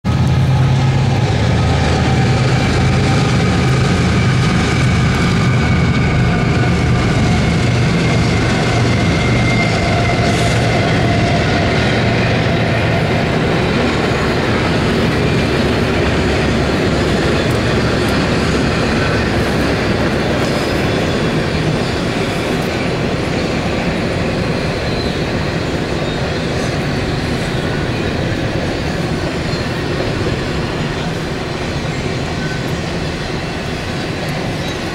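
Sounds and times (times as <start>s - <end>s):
diesel locomotive engines humming: 0.0s - 34.9s
train wheels rushing on rails: 0.0s - 34.9s.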